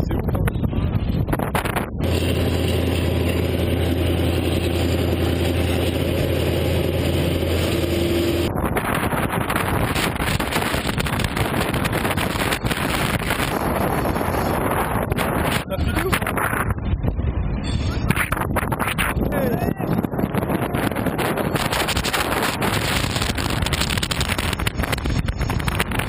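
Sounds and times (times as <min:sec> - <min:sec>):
steady low drone: 0:00.0 - 0:26.0
train running noise: 0:00.0 - 0:26.0
wind buffeting microphone: 0:00.0 - 0:26.0.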